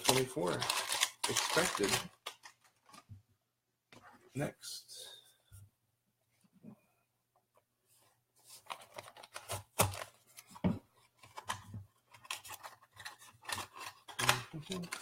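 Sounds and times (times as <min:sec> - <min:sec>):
packaging being torn open: 0:00.0 - 0:02.6, 0:13.4 - 0:15.0.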